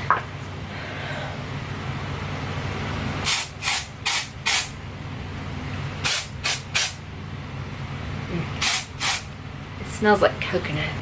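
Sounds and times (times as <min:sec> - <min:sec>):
aerosol spray bursts: 0:03.2 - 0:04.7, 0:06.0 - 0:07.0, 0:08.6 - 0:09.3.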